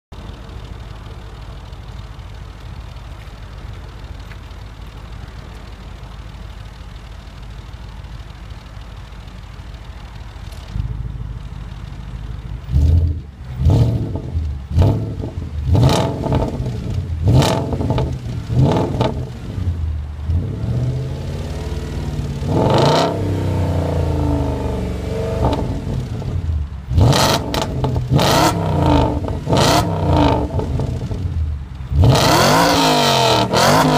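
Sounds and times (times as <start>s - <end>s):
car engine idling and revving: 0.1s - 33.9s.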